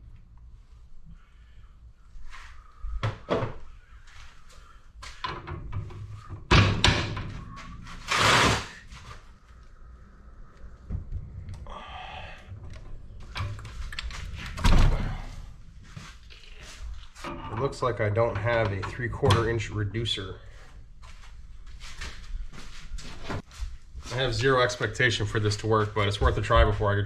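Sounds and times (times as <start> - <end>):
drawer sliding: 7.1 - 8.9.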